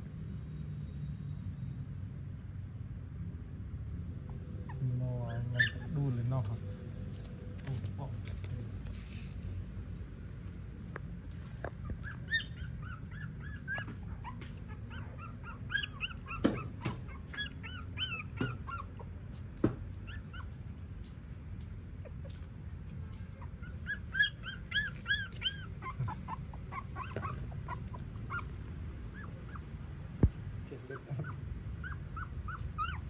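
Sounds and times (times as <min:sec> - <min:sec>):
puppies squealing and whimpering: 0:04.3 - 0:06.7, 0:11.7 - 0:20.8, 0:22.0 - 0:29.8, 0:30.6 - 0:33.0.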